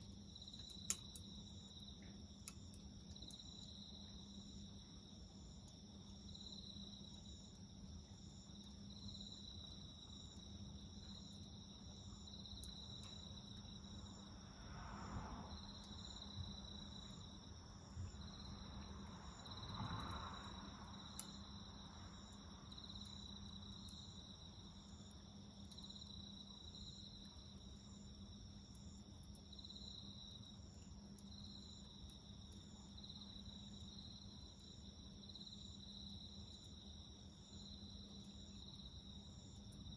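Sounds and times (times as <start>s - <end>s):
crickets chirping: 0.0s - 39.9s
passing car: 14.6s - 15.5s.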